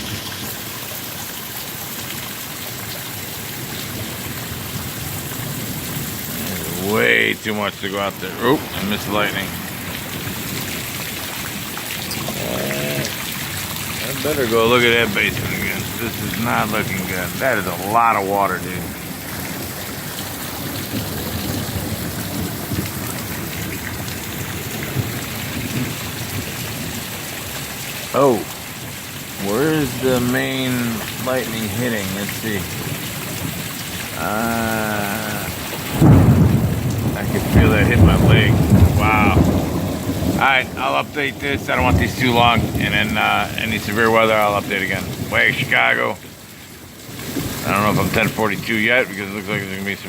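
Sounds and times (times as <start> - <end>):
heavy rain pouring: 0.0 - 50.0.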